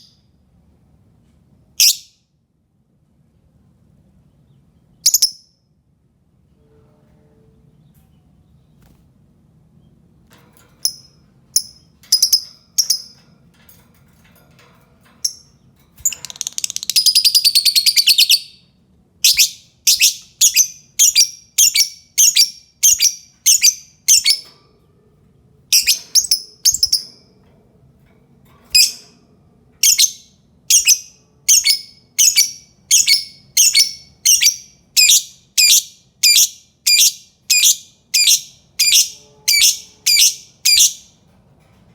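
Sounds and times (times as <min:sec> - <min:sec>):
lovebird chirping and trilling: 0:01.8 - 0:02.1, 0:10.8 - 0:13.2, 0:15.2 - 0:18.6, 0:19.2 - 0:24.5, 0:25.7 - 0:27.3, 0:28.7 - 0:29.0, 0:29.8 - 0:41.2.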